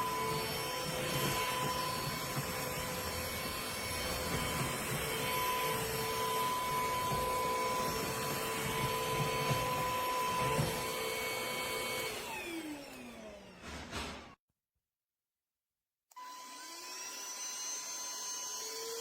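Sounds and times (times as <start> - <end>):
stick vacuum cleaner running: 0.0 - 14.4.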